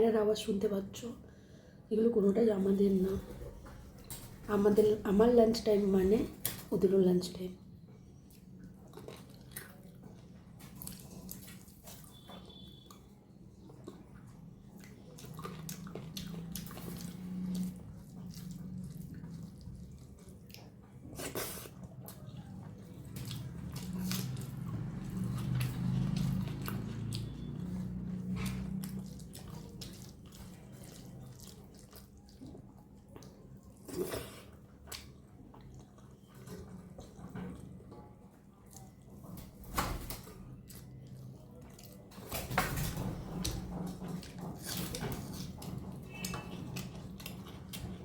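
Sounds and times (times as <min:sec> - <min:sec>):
wet chewing: 0:08.2 - 0:37.8, 0:40.6 - 0:42.2, 0:43.3 - 0:48.0.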